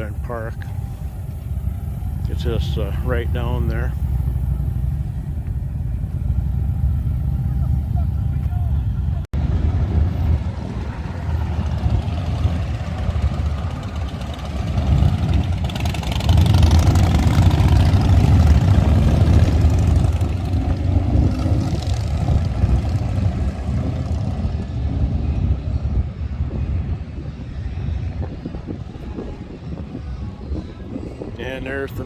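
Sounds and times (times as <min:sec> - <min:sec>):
motorcycle engines rumbling: 0:00.0 - 0:32.0.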